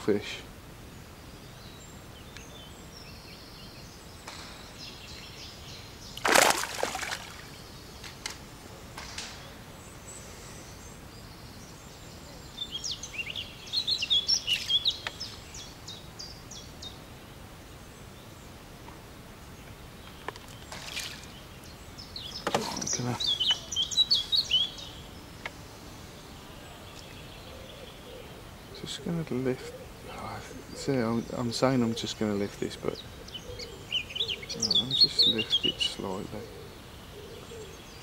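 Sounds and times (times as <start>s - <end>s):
small bird chirping: 9.4s - 17.1s, 19.5s - 38.0s.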